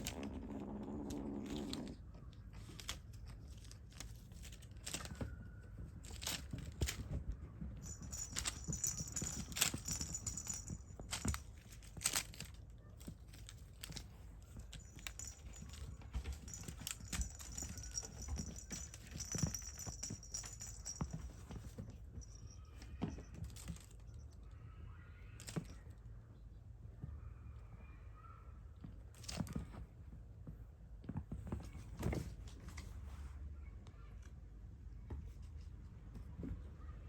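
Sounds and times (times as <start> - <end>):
kittens scratching and tapping: 0.0 - 24.1.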